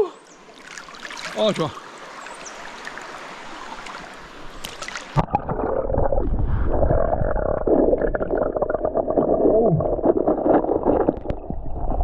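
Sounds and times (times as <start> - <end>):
running river water: 0.0 - 12.0
muffled underwater gurgling rush: 5.1 - 12.0.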